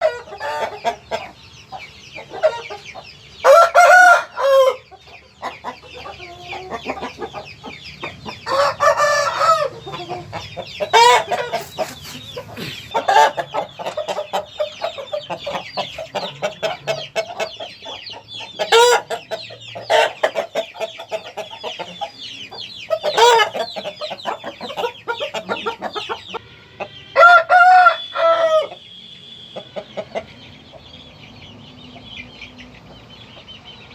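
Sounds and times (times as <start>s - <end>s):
chickens clucking: 0.0s - 28.9s, 29.5s - 33.9s
roosters crowing: 3.4s - 5.0s, 8.4s - 17.4s, 18.6s - 20.6s, 23.0s - 28.9s.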